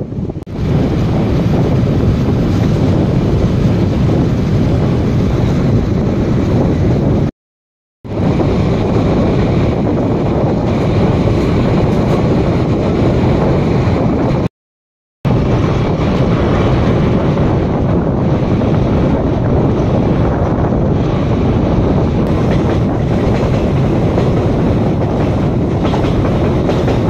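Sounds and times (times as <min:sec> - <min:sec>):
train running rumble: 0:00.0 - 0:07.3, 0:08.1 - 0:14.5, 0:15.3 - 0:27.0
wind rushing over microphone: 0:00.0 - 0:07.3, 0:08.0 - 0:14.5, 0:15.2 - 0:27.0.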